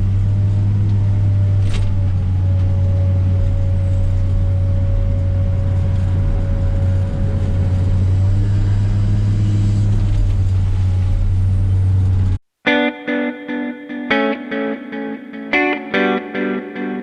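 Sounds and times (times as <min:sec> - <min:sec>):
diesel engine running under load: 0:00.0 - 0:12.4.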